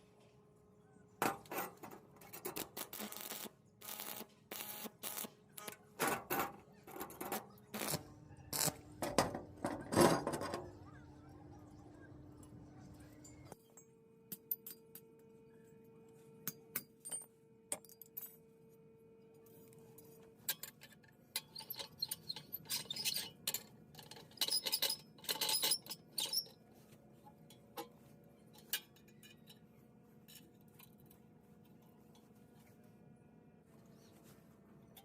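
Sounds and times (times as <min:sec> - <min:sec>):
steel pieces clinking: 0:20.5 - 0:26.5.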